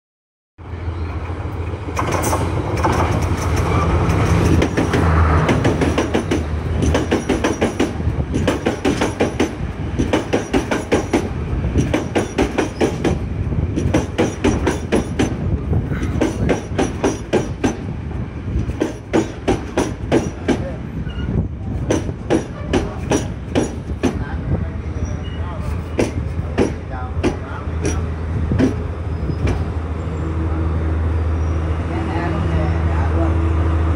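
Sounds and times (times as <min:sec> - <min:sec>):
train wheels clacking over rail joints: 0:01.7 - 0:20.8, 0:21.6 - 0:24.4, 0:25.6 - 0:29.7.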